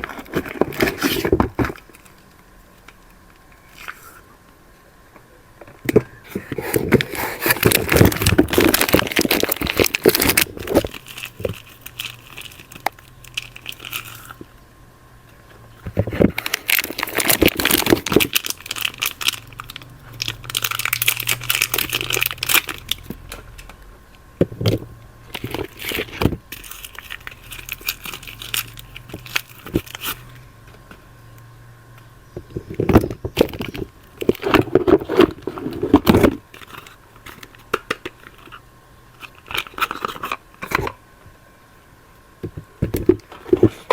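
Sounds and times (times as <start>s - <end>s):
wrappers crinkling and tearing: 6.4s - 14.4s, 16.0s - 23.7s, 25.2s - 30.4s, 39.2s - 40.8s.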